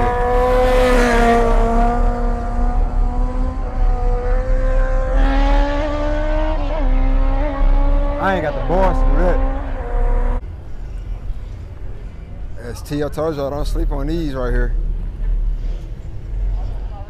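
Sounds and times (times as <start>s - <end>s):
car engine at high revs: 0.0s - 10.4s
engine rev blips: 0.0s - 10.4s.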